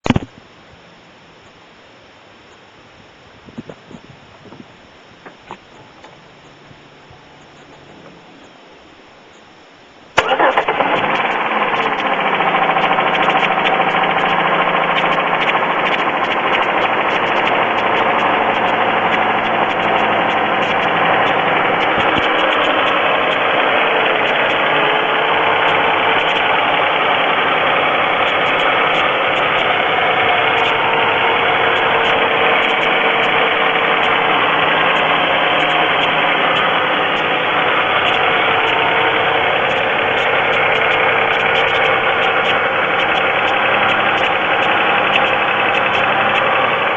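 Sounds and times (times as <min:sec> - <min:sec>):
car engine idling: 0:10.1 - 0:46.9
rapid ticking engine knock: 0:10.2 - 0:46.9.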